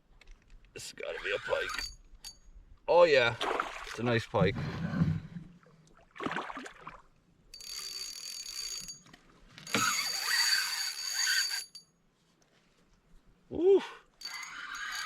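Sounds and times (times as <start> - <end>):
fishing reel ratcheting: 1.2 - 2.4, 7.6 - 9.0, 9.7 - 11.8, 14.2 - 15.0.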